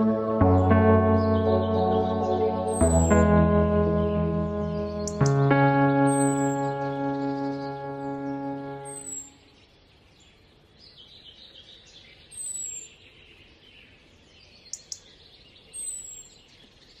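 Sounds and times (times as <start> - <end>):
birds chirping: 0.0 - 9.5.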